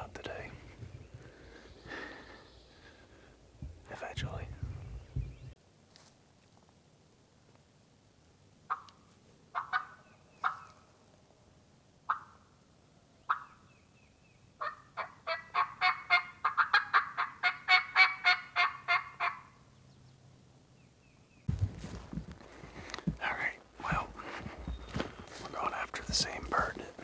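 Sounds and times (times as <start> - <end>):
turkey yelps: 8.7 - 8.9, 9.5 - 10.8, 12.1 - 12.4, 13.3 - 13.6, 14.6 - 19.6.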